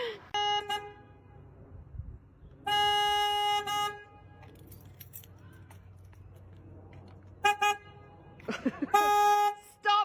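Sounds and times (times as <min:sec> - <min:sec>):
car horn honking: 0:00.3 - 0:01.4, 0:02.6 - 0:04.5, 0:07.4 - 0:09.9.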